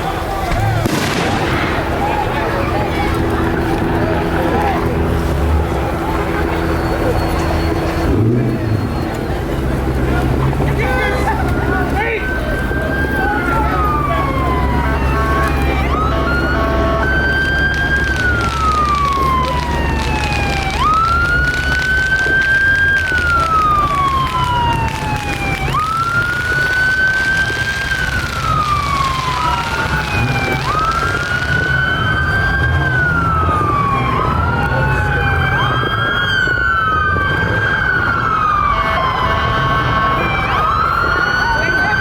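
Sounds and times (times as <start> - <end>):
police siren wailing: 0.0 - 42.0
second siren: 0.0 - 42.0.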